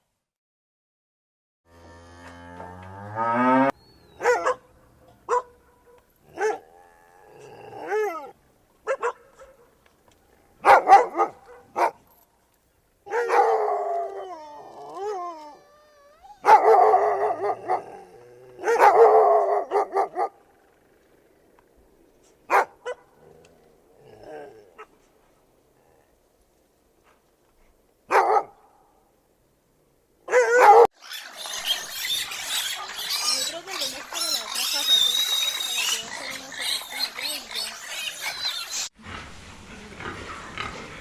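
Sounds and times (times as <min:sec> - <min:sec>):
dog barking and yelping: 0:04.1 - 0:06.7, 0:07.8 - 0:09.7, 0:10.6 - 0:12.0, 0:13.1 - 0:20.4, 0:22.5 - 0:23.1, 0:28.1 - 0:28.6, 0:30.3 - 0:38.9
howl-like call: 0:13.1 - 0:19.8
rising animal call: 0:13.7 - 0:19.7.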